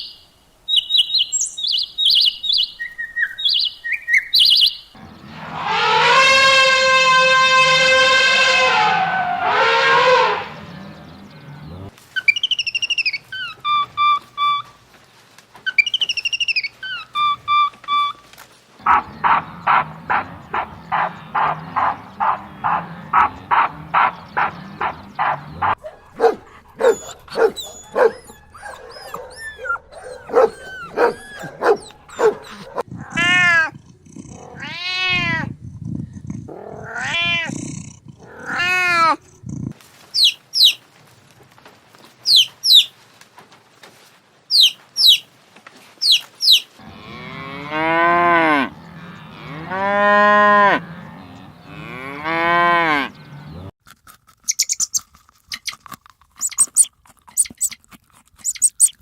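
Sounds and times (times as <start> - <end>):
repeated animal calls: 4.4 - 14.9, 15.7 - 40.8, 42.2 - 43.0, 44.5 - 45.3, 46.0 - 53.7
cow mooing: 5.0 - 11.9, 18.8 - 28.2, 30.2 - 33.7, 46.8 - 53.7
long drawn-out animal calls: 5.0 - 14.8, 18.8 - 35.4, 44.5 - 45.2
high chirps: 40.2 - 40.8, 42.3 - 42.9, 44.5 - 45.3, 46.0 - 46.7.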